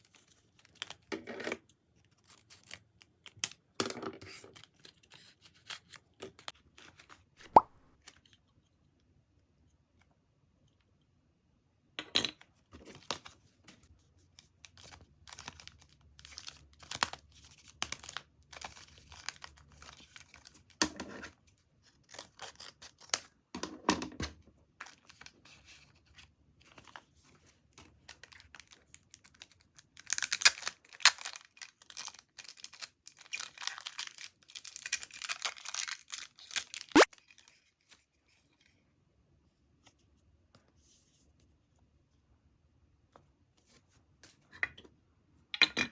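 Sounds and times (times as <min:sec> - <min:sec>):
packaging rustling and tearing: 0:28.0 - 0:37.6.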